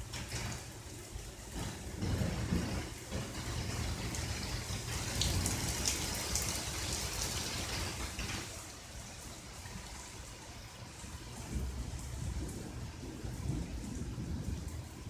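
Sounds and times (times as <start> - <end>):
rain dripping and pattering: 0.0 - 15.0.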